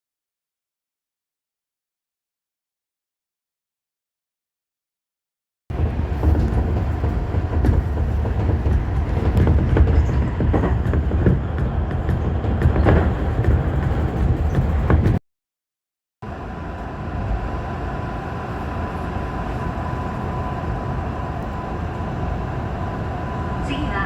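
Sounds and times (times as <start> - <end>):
train rumbling: 5.7 - 15.2, 16.2 - 24.0.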